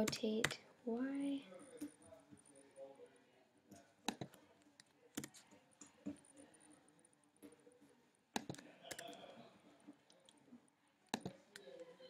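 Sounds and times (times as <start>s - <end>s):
keyboard clicks: 4.1s - 4.4s, 5.2s - 6.2s, 8.4s - 9.2s, 11.1s - 11.7s
computer mouse clicks: 4.1s - 6.2s, 8.4s - 9.2s, 11.1s - 11.8s.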